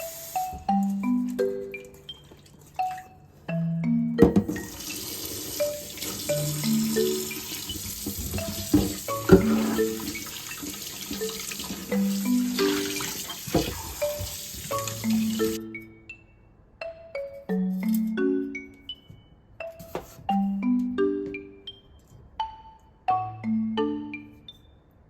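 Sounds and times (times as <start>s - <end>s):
light marimba background music: 0.0s - 25.0s
tap running into a sink: 7.4s - 11.9s, 12.6s - 15.5s.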